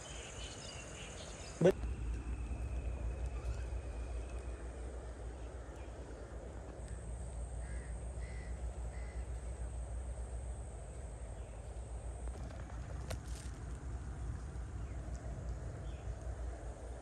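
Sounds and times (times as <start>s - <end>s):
low rumble: 1.7s - 17.0s
crow cawing: 7.6s - 9.4s.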